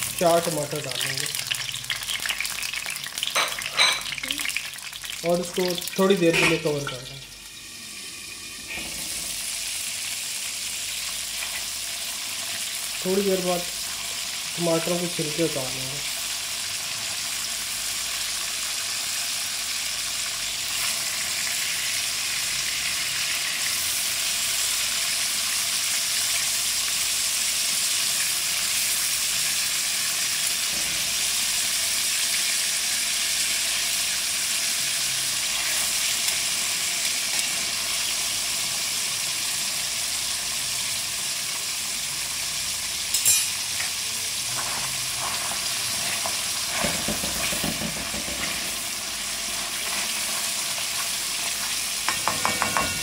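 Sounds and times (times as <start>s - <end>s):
tomatoes sizzling in hot oil: 0.0s - 53.0s
tongs and spatula turning food: 43.1s - 48.6s.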